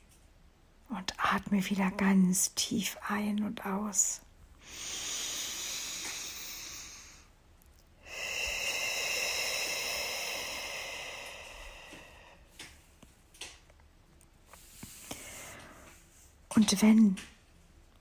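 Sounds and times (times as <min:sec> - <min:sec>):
woman breathing deeply: 0:04.6 - 0:07.3, 0:08.0 - 0:12.9, 0:14.5 - 0:16.2.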